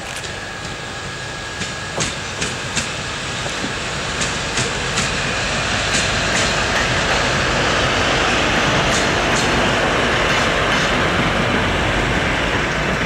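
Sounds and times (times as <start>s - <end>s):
train rolling noise: 0.0s - 13.0s
wheels clicking over rail joints: 1.5s - 7.3s.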